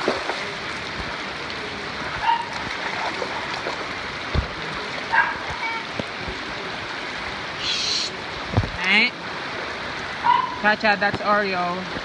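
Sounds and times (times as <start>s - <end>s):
dog barking: 2.2s - 2.5s, 5.1s - 5.4s, 10.2s - 10.6s
rain hissing: 3.4s - 12.0s.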